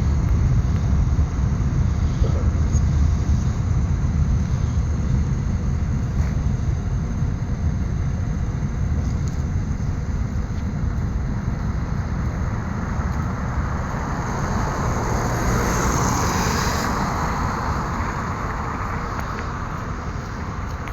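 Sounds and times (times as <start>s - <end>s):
train wheels rumbling on rails: 8.9s - 20.9s.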